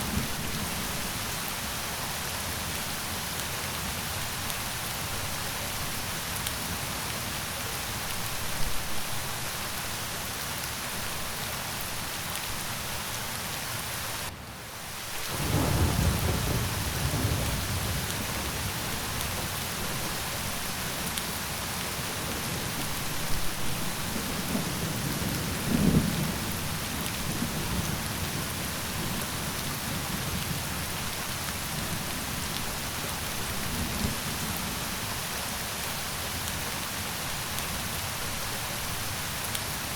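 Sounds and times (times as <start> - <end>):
steady rain falling: 0.0 - 39.9
thunder rumbling: 15.3 - 20.1.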